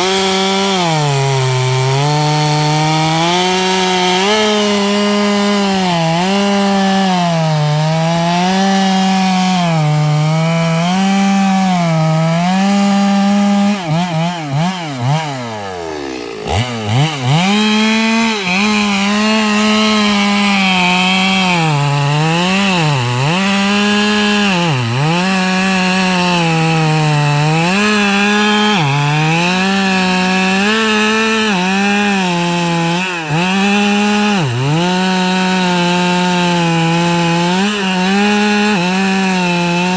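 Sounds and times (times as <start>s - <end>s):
chainsaw cutting logs: 0.0s - 39.9s
chainsaw idling: 0.0s - 39.9s.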